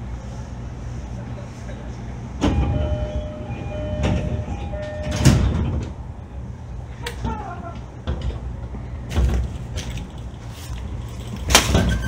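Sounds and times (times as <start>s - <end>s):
train interior rumble: 0.0s - 12.0s
knocks and clunks: 2.4s - 6.0s
faint steady tones: 2.5s - 6.0s.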